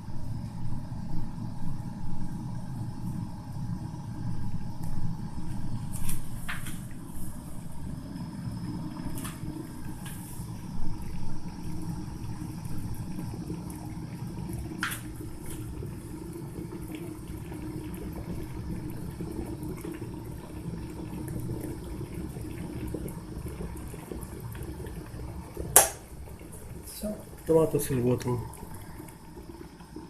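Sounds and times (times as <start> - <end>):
kettle water boiling: 0.0 - 30.0
kettle click: 25.8 - 26.0.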